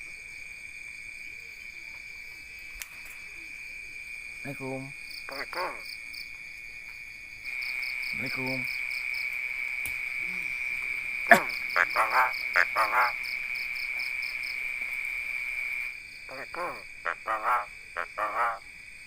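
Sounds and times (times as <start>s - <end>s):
high insect trill: 0.0s - 19.0s
myna short calls: 11.2s - 13.2s, 16.3s - 18.6s.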